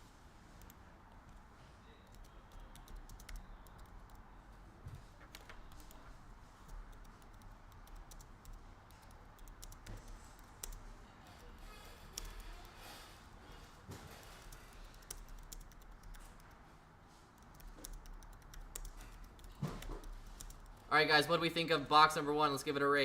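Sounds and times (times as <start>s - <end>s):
typing on computer keyboard: 2.0s - 4.3s, 5.2s - 12.9s, 14.2s - 16.6s, 17.4s - 20.9s.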